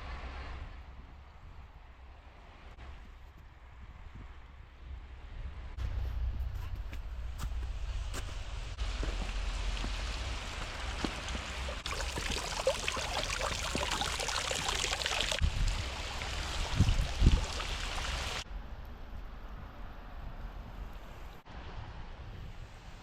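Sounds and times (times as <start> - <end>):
water running and splashing: 8.8 - 18.4
wind thumps on microphone: 15.3 - 17.8.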